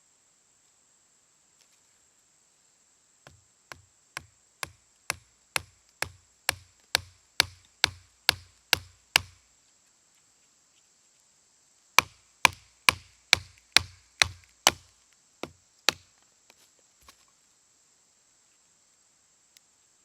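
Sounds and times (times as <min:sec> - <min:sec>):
sharp wooden knocks: 0:03.3 - 0:09.4, 0:12.0 - 0:14.8.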